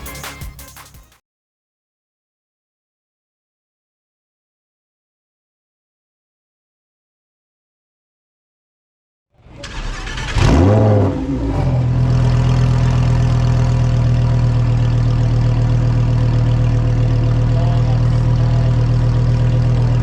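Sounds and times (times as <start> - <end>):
starter motor cranking: 9.4 - 11.0
car engine starting and idling: 9.4 - 20.0.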